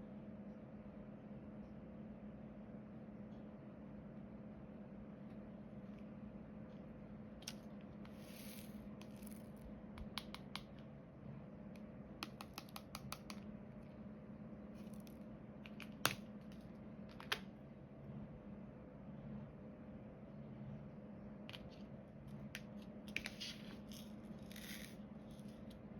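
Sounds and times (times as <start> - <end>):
low steady hum: 0.0 - 25.9
plastic clicks and taps: 10.0 - 10.7.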